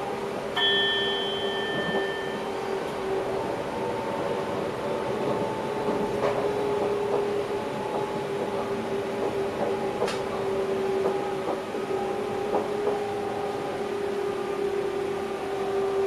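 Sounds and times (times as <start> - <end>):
electric train humming: 0.0 - 16.0.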